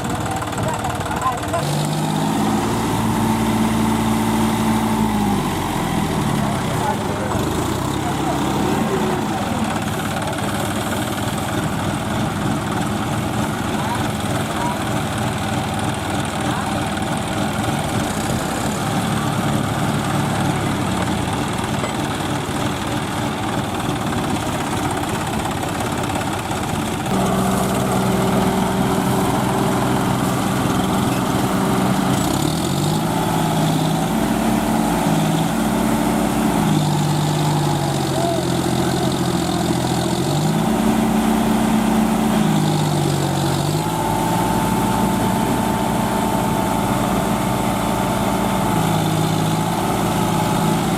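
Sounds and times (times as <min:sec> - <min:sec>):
tractor diesel engine revving: 0:00.0 - 0:50.9.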